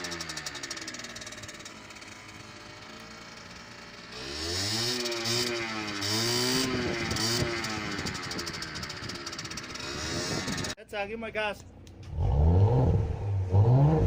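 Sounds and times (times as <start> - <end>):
small engine revving: 0.0 - 10.8, 12.0 - 14.0.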